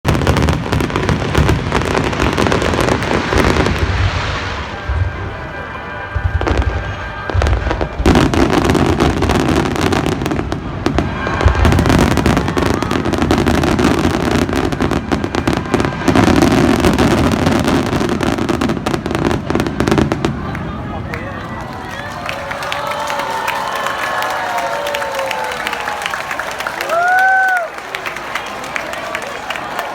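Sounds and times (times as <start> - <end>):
fireworks booming: 0.0 - 21.7
fireworks crackling: 0.0 - 29.9.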